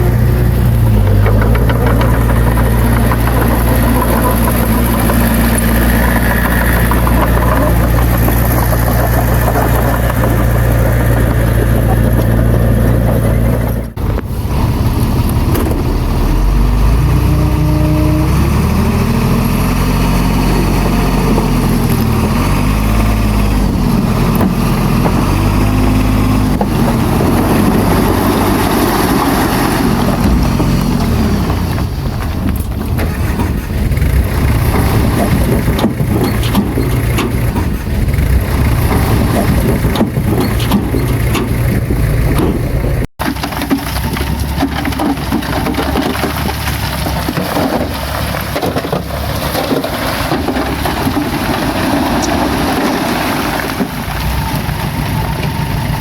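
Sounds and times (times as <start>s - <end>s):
heavy diesel engine revving: 0.0s - 43.2s.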